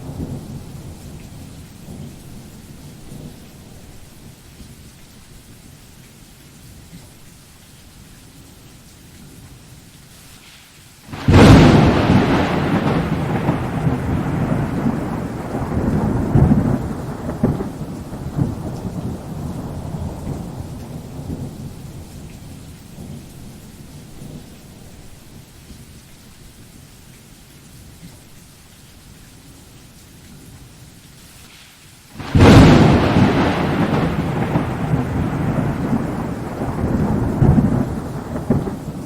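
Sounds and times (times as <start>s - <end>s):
steady rain: 0.0s - 39.0s
thunderclap: 11.1s - 23.2s, 32.2s - 39.0s
rolling thunder: 11.1s - 25.0s, 32.2s - 39.0s.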